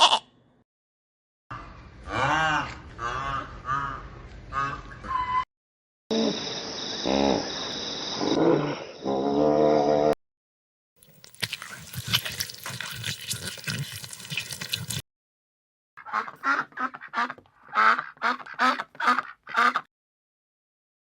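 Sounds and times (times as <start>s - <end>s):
duck quacking: 2.2s - 4.9s, 16.0s - 19.9s.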